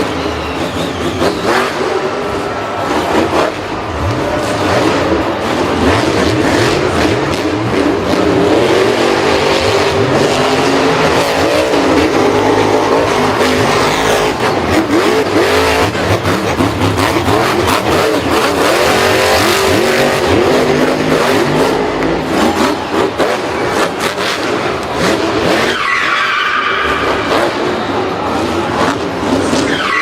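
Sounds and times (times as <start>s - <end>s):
engines revving: 0.0s - 30.0s
tyre squeal: 29.4s - 30.0s.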